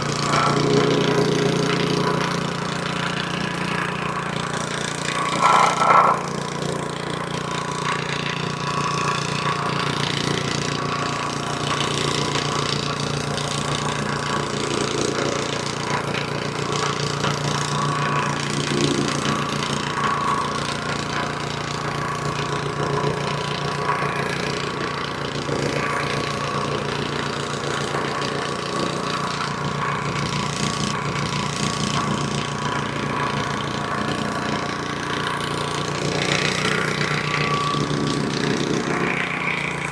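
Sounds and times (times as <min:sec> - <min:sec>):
plate compactor engine running: 0:00.0 - 0:39.9
plate tamping stone: 0:05.1 - 0:06.6.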